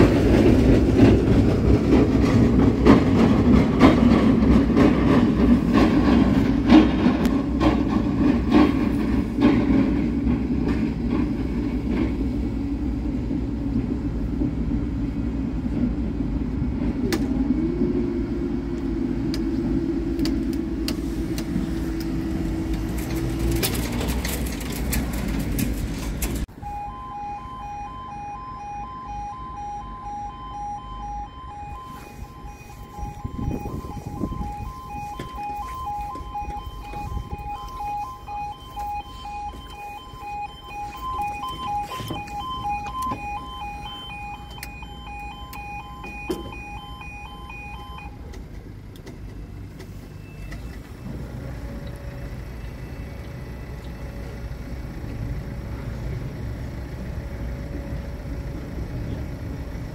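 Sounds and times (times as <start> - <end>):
road vehicle passing: 0.0 - 26.9, 29.0 - 50.2
pulsing two-tone crossing alarm: 26.5 - 48.2.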